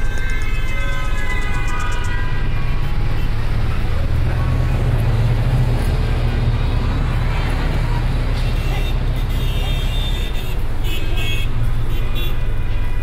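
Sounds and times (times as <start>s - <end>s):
sustained musical tones: 0.0s - 5.6s.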